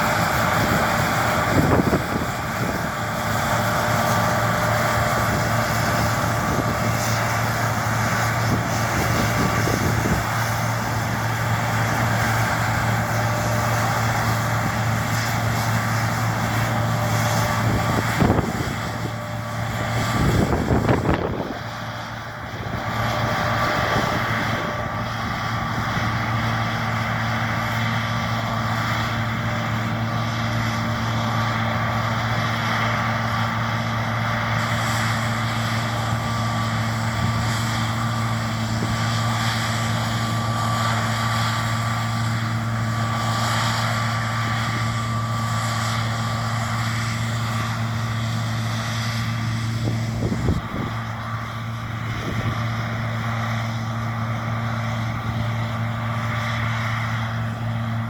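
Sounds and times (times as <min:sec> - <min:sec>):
wind buffeting: 0:00.0 - 0:26.4, 0:49.6 - 0:51.1
combine harvester engine drone: 0:00.0 - 0:58.0.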